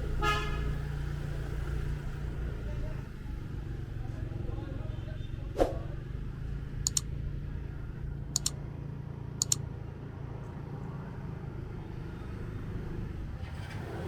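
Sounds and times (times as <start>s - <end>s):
sharp double clicks: 6.9s - 7.1s, 8.4s - 8.6s, 9.4s - 9.6s.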